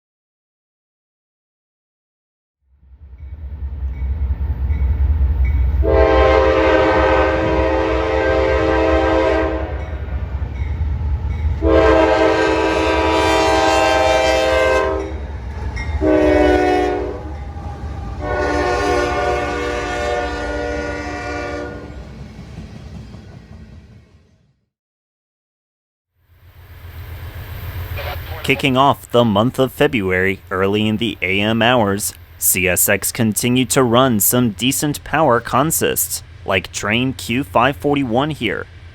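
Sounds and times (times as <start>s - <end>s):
train rumbling past: 2.8s - 24.7s, 26.3s - 38.9s
locomotive horn: 5.7s - 10.7s, 11.5s - 22.1s, 27.9s - 28.8s.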